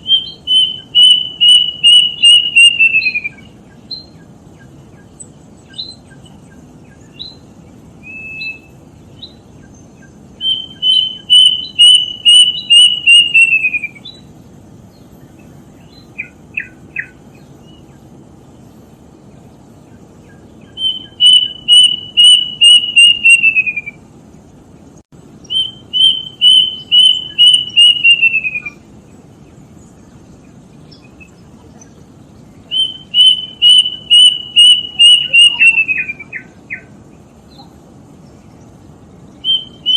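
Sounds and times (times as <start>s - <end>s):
cuckoo whistled song: 0.0s - 14.3s, 15.8s - 18.0s, 20.2s - 24.0s, 25.4s - 28.8s, 32.6s - 37.7s, 39.3s - 39.9s.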